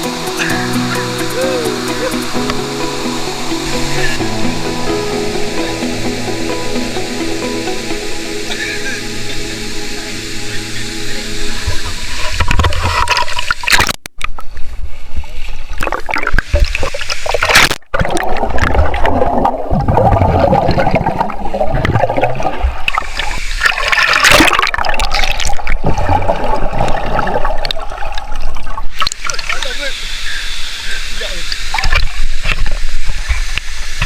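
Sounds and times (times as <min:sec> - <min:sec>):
waterfall rushing and splashing: 0:00.0 - 0:13.7.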